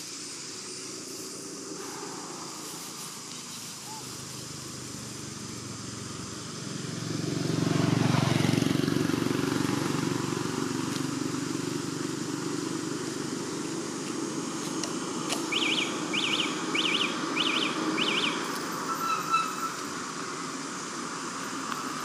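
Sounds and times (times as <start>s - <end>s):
bird chirping: 15.5s - 19.8s.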